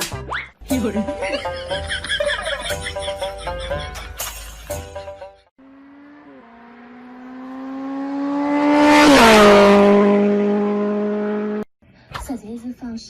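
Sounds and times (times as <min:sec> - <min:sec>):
motor vehicle passing by: 0:05.6 - 0:11.7
road noise: 0:05.6 - 0:11.7.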